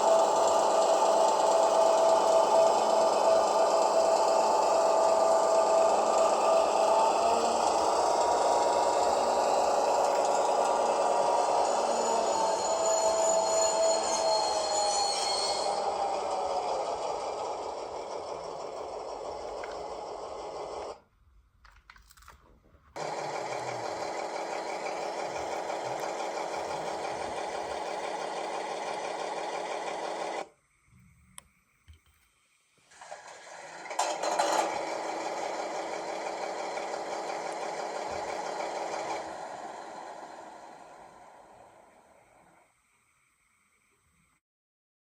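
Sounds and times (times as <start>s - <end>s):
diesel engine sound from loudspeaker: 0.0s - 13.6s, 23.0s - 29.8s.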